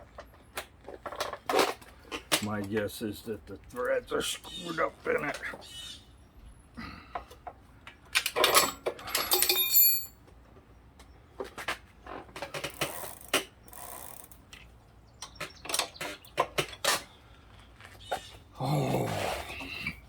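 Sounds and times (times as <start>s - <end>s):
metal tool clanks and clicks: 8.1s - 10.2s.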